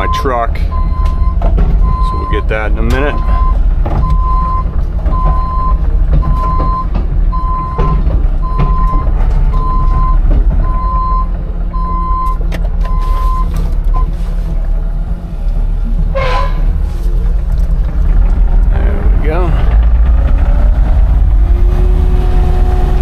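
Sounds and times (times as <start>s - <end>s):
travel alarm beeping: 0.0s - 14.1s
excavator diesel engine running: 0.0s - 23.0s
clanks and knocks: 0.7s - 13.9s, 15.9s - 22.5s.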